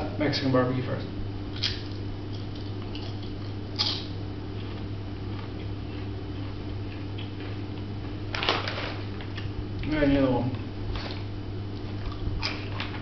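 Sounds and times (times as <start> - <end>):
steady low hum: 0.0 - 13.0
potato chip crunching: 1.6 - 7.6.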